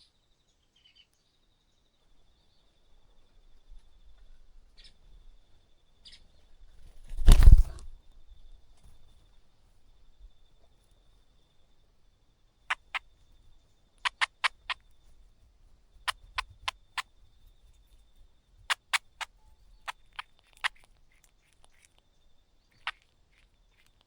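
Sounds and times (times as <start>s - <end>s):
bird chip calls: 12.6s - 24.0s.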